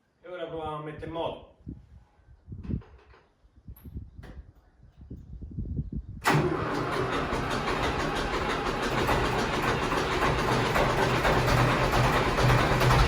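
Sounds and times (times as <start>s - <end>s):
diesel engine cranking and starting: 6.2s - 13.0s.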